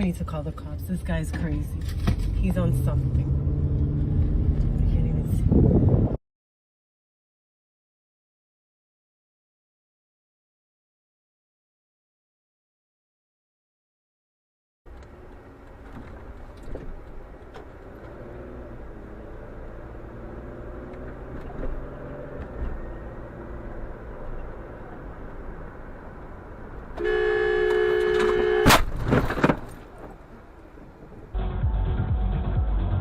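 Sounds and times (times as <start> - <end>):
car road noise and engine hum: 0.0 - 6.2, 14.9 - 31.4
car horn: 27.0 - 28.9
loud crash and knocks: 28.6 - 29.8.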